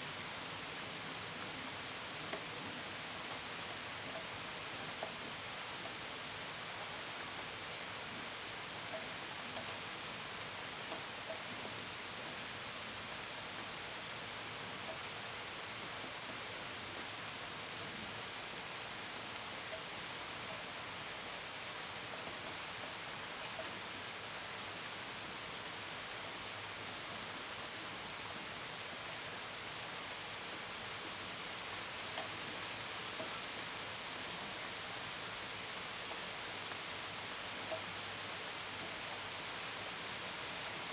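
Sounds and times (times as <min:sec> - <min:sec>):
steady rain: 0:00.0 - 0:40.9
faint cricket chirps: 0:29.1 - 0:40.9.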